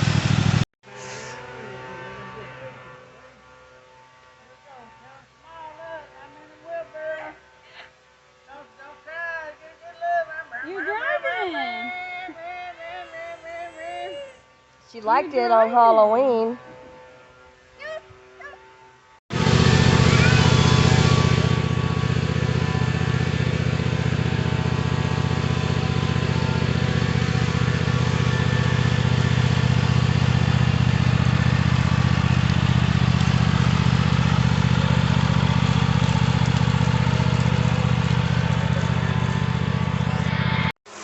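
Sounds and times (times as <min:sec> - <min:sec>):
engine running steadily: 0:00.0 - 0:01.4, 0:19.3 - 0:40.8.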